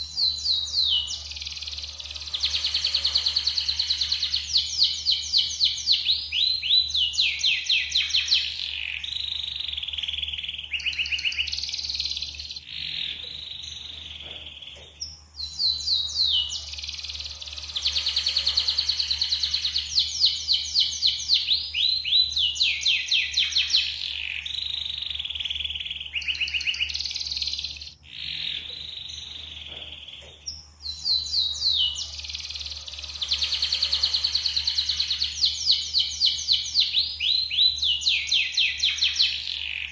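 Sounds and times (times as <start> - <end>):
canary singing trills: 0.0 - 39.9
steady low hum: 26.9 - 36.8.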